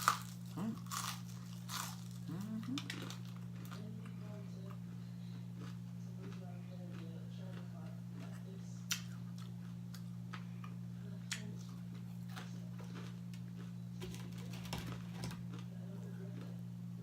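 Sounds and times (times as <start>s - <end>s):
crunching of crispy chicken wings: 0.0s - 3.9s, 11.4s - 14.7s
steady low hum: 0.0s - 17.0s.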